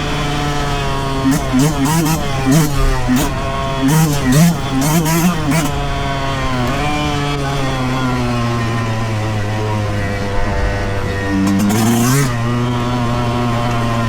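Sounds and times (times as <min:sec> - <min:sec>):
two-stroke motorcycle engine revving: 0:00.0 - 0:14.0.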